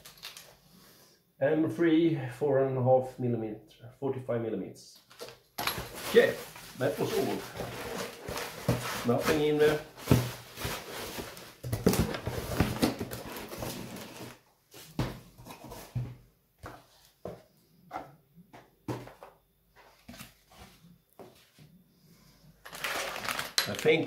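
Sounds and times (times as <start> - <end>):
packaging rustling: 0.0 - 0.6, 5.1 - 15.1, 22.6 - 24.0.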